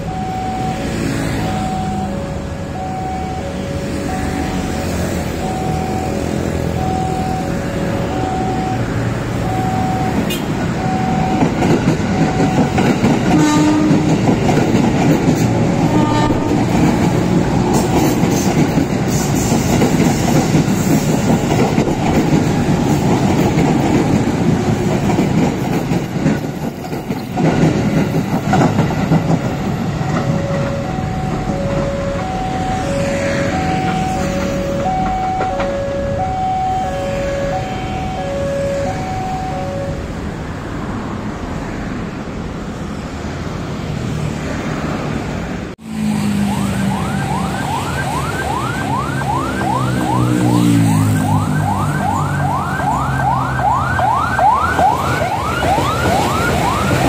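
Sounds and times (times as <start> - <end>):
two-tone crossing alarm: 0.0 - 15.1, 15.7 - 18.6, 27.6 - 40.3, 46.3 - 57.0
train wheels rumbling and clacking: 3.4 - 36.3
train horn blasts: 13.3 - 14.2, 15.8 - 17.4.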